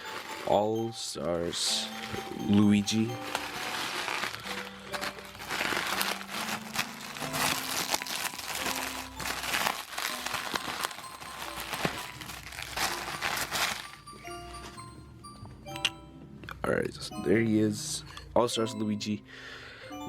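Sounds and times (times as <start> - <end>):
background music with low notes: 0.0 - 20.0
plastic packaging crinkling: 2.0 - 14.8.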